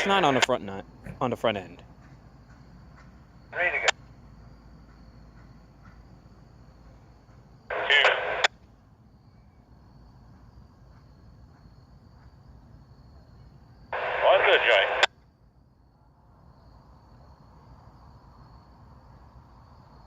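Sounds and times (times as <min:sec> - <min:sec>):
two-way radio transmission: 0:00.0 - 0:01.8, 0:03.5 - 0:04.0, 0:07.7 - 0:08.5, 0:14.0 - 0:15.1
radio squelch click: 0:03.6 - 0:04.1, 0:07.7 - 0:08.6, 0:14.0 - 0:15.1.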